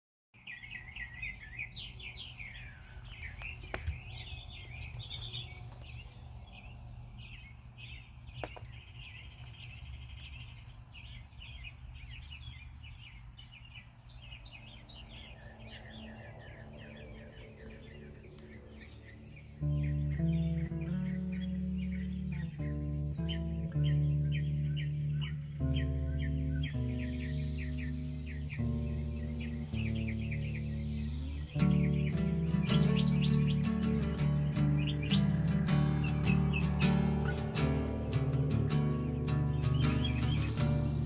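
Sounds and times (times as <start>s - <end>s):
birds chirping and singing: 0.4s - 41.0s
steady low rumble: 1.0s - 41.0s.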